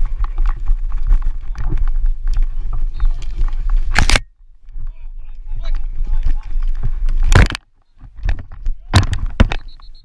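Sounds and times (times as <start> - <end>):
wind rumbling on microphone: 0.0 - 10.0
sharp clicks and knocks: 5.7 - 9.9.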